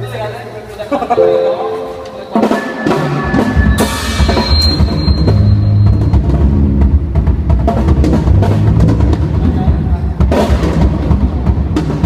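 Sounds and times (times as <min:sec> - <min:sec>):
band playing: 0:01.2 - 0:04.4
drum strikes: 0:01.2 - 0:05.0.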